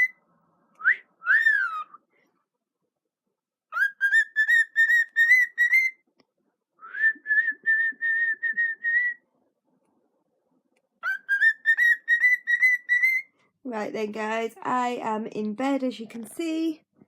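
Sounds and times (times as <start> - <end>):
cockatiel whistling: 0.8 - 2.0, 3.7 - 6.0, 6.8 - 9.2, 11.0 - 13.3.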